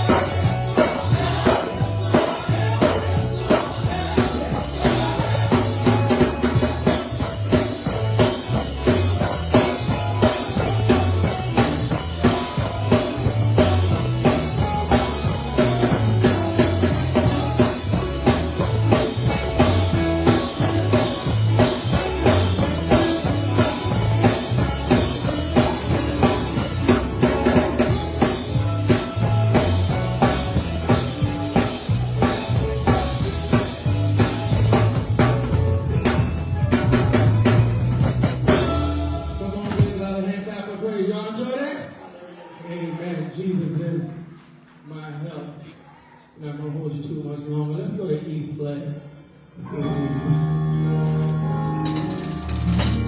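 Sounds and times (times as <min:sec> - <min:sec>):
drum kit: 0:00.0 - 0:40.3, 0:51.4 - 0:53.0
live gospel band playing: 0:00.0 - 0:41.2, 0:49.6 - 0:53.0.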